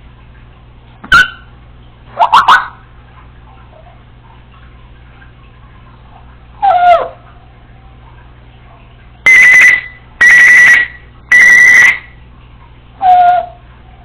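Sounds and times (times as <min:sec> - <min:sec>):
parrot whistle falling in pitch: 0:01.1 - 0:01.5, 0:09.3 - 0:12.1
parrot mimicking alarm beeps: 0:09.3 - 0:12.1.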